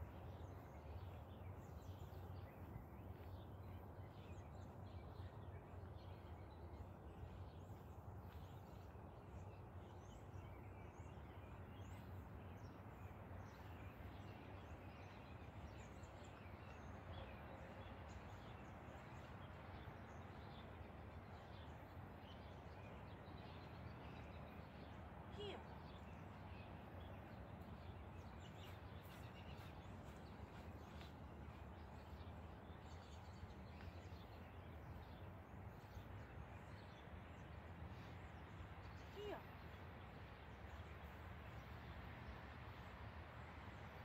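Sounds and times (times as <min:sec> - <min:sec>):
small birds chirping faintly: 0:00.0 - 0:44.0.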